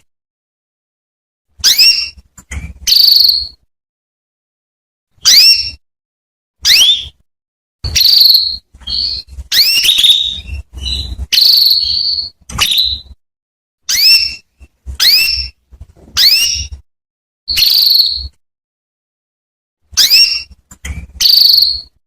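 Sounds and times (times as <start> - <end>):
canary calling: 1.6 - 2.2, 2.8 - 3.6, 5.2 - 5.8, 6.6 - 7.2, 7.8 - 13.2, 13.9 - 15.6, 16.2 - 16.8, 17.5 - 18.3, 20.0 - 22.0.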